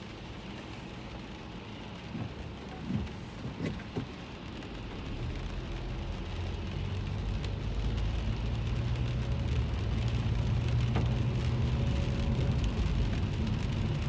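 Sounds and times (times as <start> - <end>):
engine and tyres rumble: 0.0 - 14.0
rain on car roof: 0.0 - 14.0.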